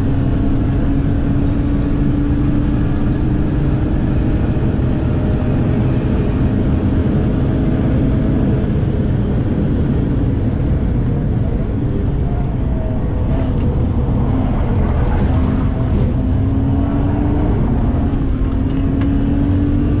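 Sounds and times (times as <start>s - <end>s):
car engine revving from inside: 12.5s - 20.0s.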